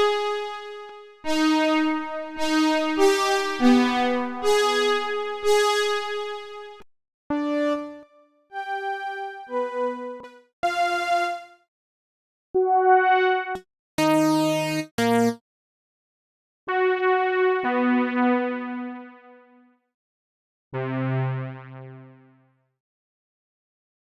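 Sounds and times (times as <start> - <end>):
synthesizer electric piano music: 1.3 - 6.4, 8.6 - 11.5, 12.6 - 15.4.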